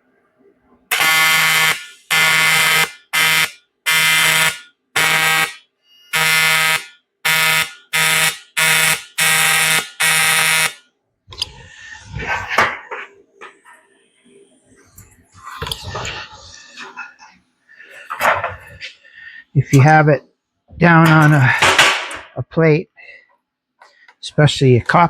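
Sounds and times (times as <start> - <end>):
welding arc buzzing: 0.9 - 10.8.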